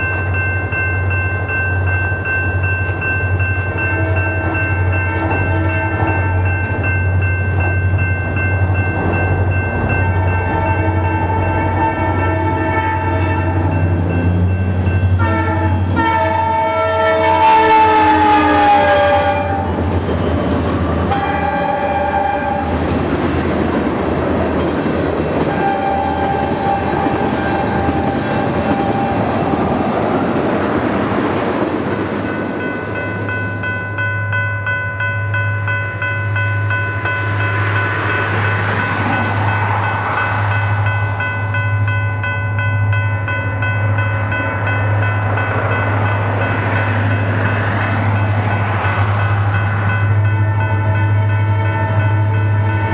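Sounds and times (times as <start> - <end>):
train rumbling by: 0.0 - 52.9
train air horn blowing: 5.1 - 6.4, 10.1 - 13.7, 15.2 - 19.8, 21.1 - 22.8, 25.5 - 29.6, 50.4 - 52.9.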